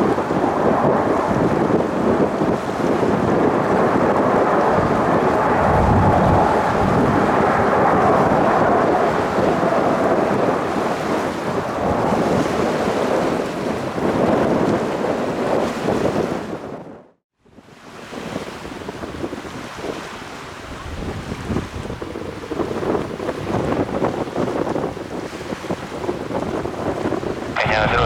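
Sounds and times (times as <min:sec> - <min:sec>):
jet engines roaring: 0:00.0 - 0:13.4, 0:27.6 - 0:28.0.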